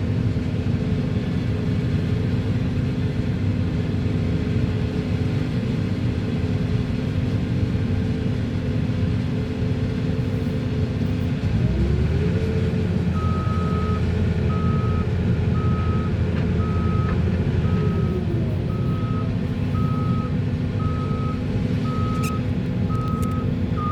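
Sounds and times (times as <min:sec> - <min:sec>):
heavy diesel engines running: 0:00.0 - 0:23.9
reversing alarm beeping: 0:13.2 - 0:23.9.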